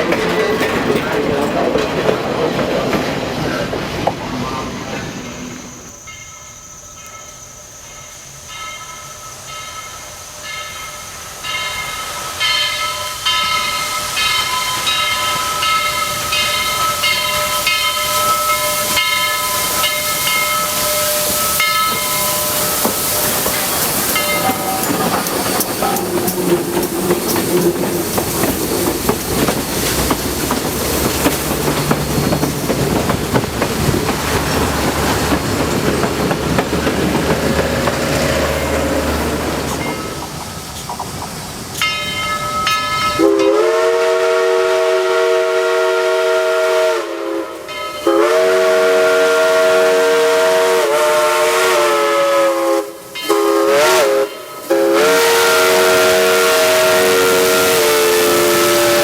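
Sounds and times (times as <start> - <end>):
locomotive bell ringing: 0.0 - 2.0, 6.0 - 28.7, 39.4 - 40.4, 41.7 - 43.7, 47.4 - 48.4, 53.1 - 55.0
rumbling train noise: 0.0 - 59.0
steam hiss: 0.7 - 59.0.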